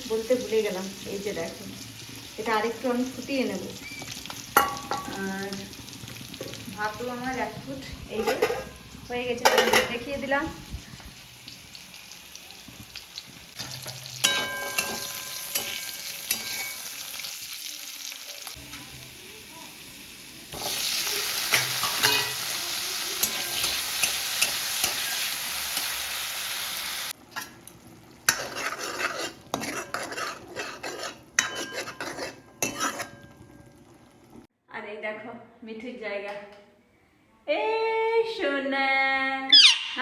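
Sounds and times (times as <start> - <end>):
food sizzling in a pan: 0.0 - 34.5
spatula scraping a pan: 7.8 - 10.3, 13.2 - 17.3, 20.6 - 26.0, 28.2 - 33.7.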